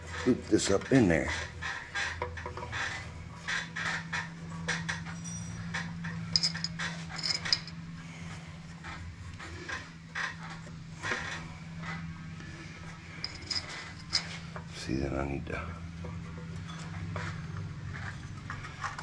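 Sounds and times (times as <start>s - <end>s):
steady low hum: 0.0s - 19.0s
small metal parts clinking: 3.5s - 8.0s, 13.1s - 14.5s.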